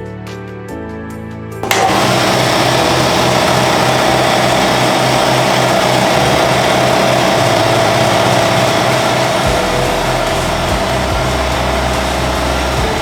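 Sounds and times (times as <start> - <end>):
air compressor drone: 1.6 - 13.0.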